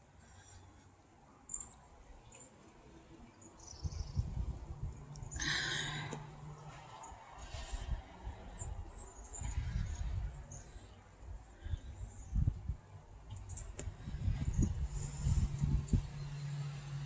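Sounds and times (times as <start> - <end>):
small birds chirping: 0.2 - 6.2, 8.3 - 16.8
low rumble on microphone: 3.7 - 17.0.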